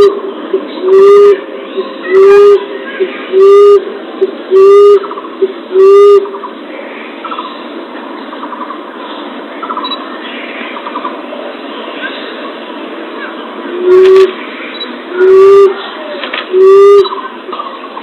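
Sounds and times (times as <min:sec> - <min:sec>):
dove cooing: 0:00.0 - 0:06.4, 0:13.7 - 0:14.4, 0:15.1 - 0:17.8
faint chirping trills: 0:00.0 - 0:18.0.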